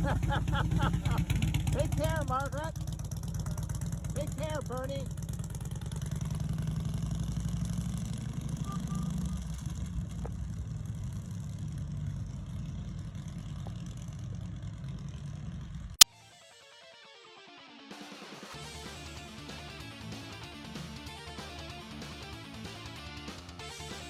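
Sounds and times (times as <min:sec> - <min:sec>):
motorcycle engine pulling away: 0:00.0 - 0:16.0.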